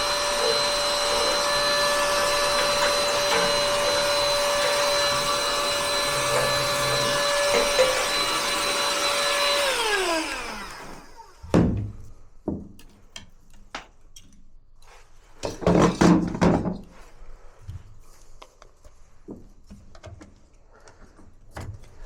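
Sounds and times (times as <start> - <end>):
vacuum motor winding down: 0.0 - 11.6
vacuum cleaner running: 0.0 - 11.9
knocks and clattering: 0.5 - 9.2.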